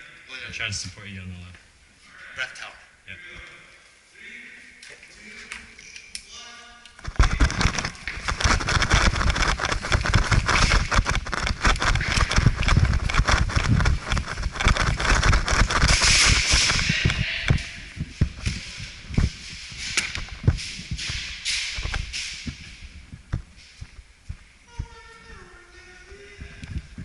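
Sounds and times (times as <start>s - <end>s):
gear knocking and rustling: 7.0s - 25.0s
fast footsteps: 7.0s - 25.5s.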